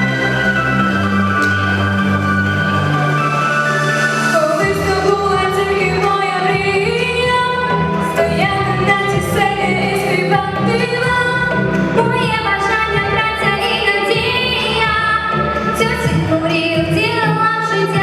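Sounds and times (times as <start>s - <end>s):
backing track: 0.0s - 18.0s
woman singing pop song: 4.3s - 18.0s.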